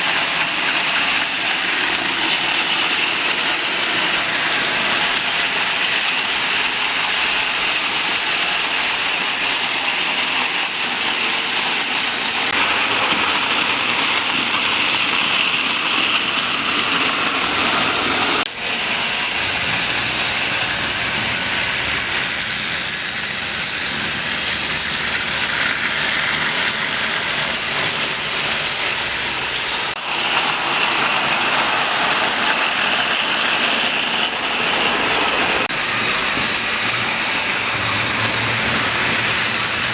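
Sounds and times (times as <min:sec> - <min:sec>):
model train rumble and hiss: 0:00.0 - 0:39.9.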